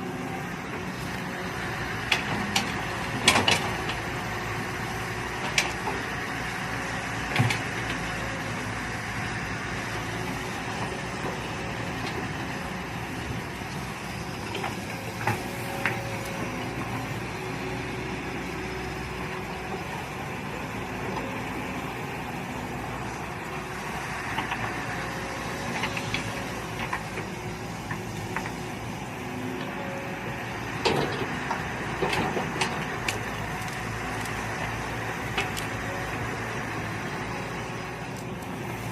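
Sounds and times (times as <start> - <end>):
mini excavator engine running: 0.0 - 38.9.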